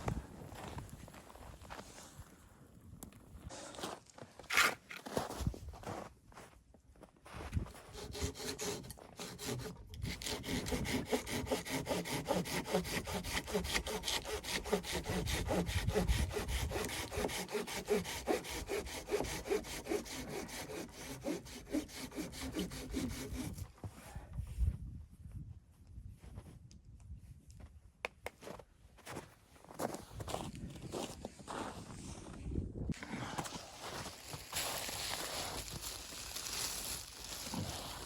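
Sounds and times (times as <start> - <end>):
hand saw cutting wood: 7.9 - 23.6.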